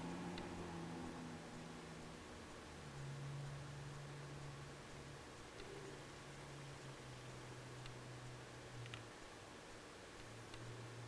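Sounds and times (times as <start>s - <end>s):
background hiss: 0.0s - 11.0s
soft tick: 7.8s - 9.1s.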